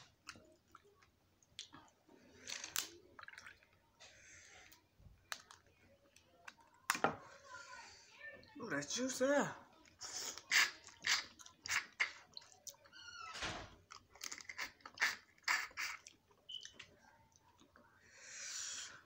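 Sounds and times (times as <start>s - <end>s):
crab legs crunching and chewing: 9.8s - 13.0s, 13.8s - 17.8s.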